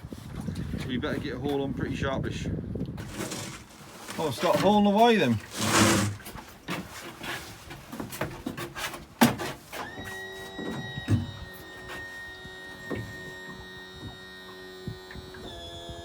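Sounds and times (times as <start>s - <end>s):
pot hauler whining: 3.0s - 7.5s.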